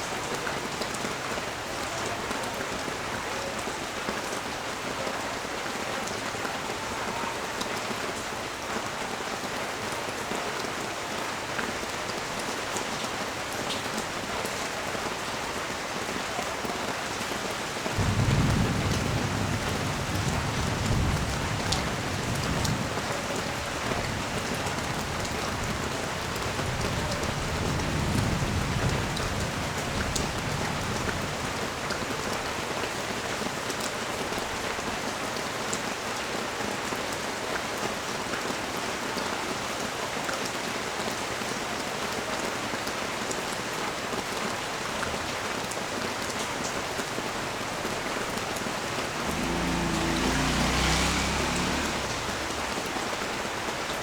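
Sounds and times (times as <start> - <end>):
steady rain hissing: 0.0 - 54.0
thunder rumbling: 18.0 - 31.6, 47.2 - 53.8.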